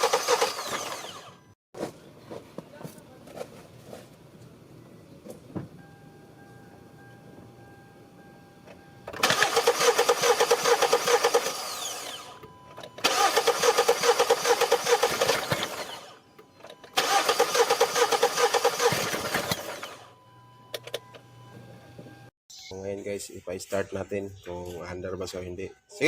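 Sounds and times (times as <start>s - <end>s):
car engine cranking on starter: 0.0s - 1.5s, 8.7s - 20.1s.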